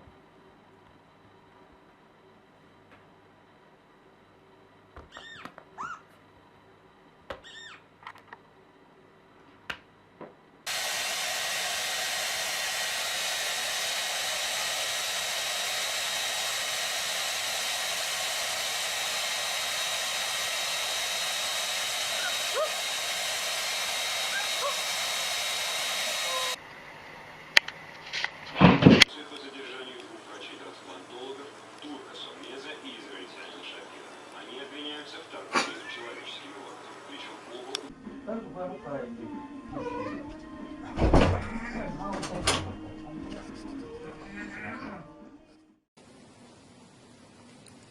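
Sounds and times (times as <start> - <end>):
high-pitched animal calls: 5.1 - 6.1, 7.4 - 7.9, 22.1 - 22.8, 24.3 - 24.8, 26.2 - 26.6, 39.7 - 40.3.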